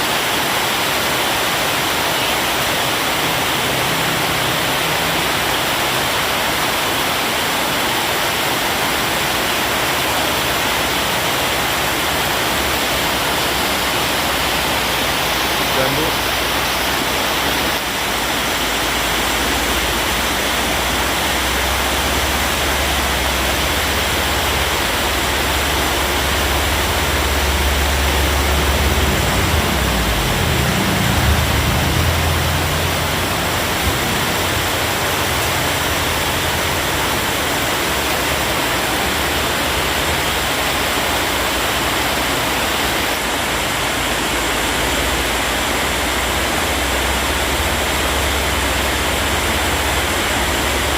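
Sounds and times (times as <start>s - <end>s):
heavy rain falling: 0.0s - 50.9s
low rumble: 12.6s - 37.2s.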